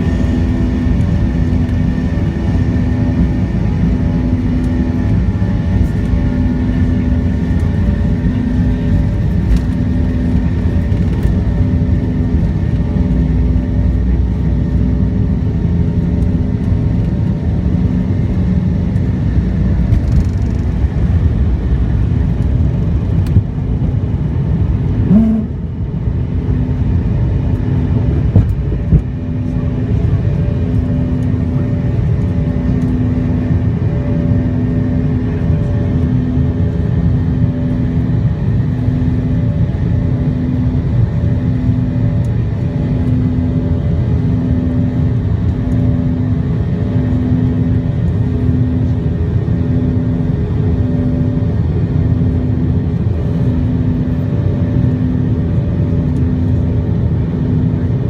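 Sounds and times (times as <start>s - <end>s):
jet engines rumbling: 0.0s - 58.0s
short rising whine: 25.1s - 25.7s.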